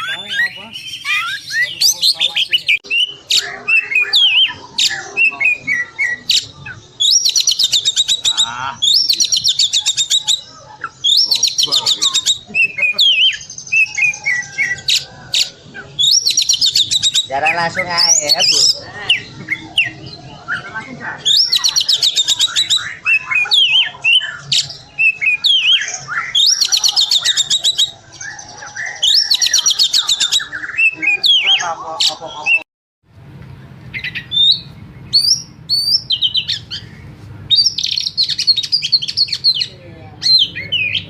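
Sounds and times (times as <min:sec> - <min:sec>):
bird whistling song: 0:00.0 - 0:31.6, 0:33.9 - 0:41.0
buzzy high bird trill: 0:00.0 - 0:32.6.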